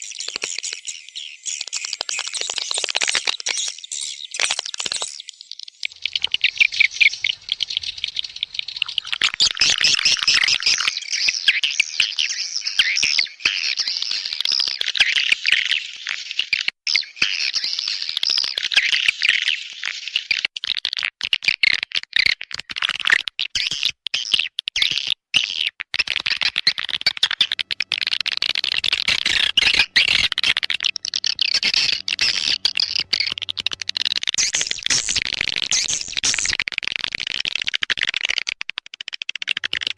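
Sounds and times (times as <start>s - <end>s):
recorded swiftlet twittering: 0.0s - 14.8s, 26.5s - 39.9s.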